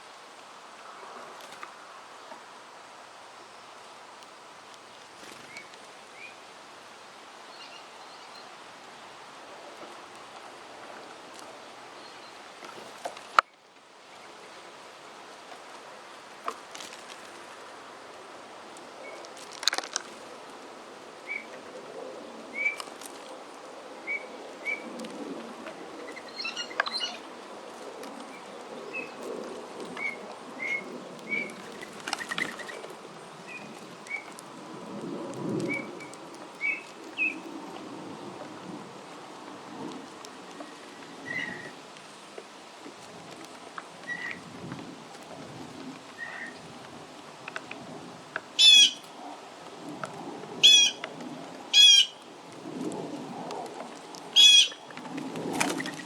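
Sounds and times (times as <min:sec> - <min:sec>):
wings fluttering: 0:05.0 - 0:06.0, 0:15.5 - 0:20.6, 0:24.2 - 0:37.9, 0:43.0 - 0:56.0
wind noise: 0:16.8 - 0:56.0.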